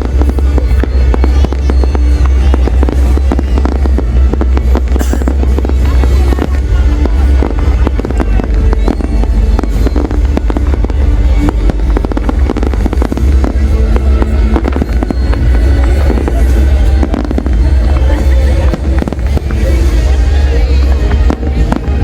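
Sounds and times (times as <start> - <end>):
deep rumble: 0.0 - 22.0
fireworks bangs and crackles: 0.0 - 22.0
music playing: 0.0 - 22.0.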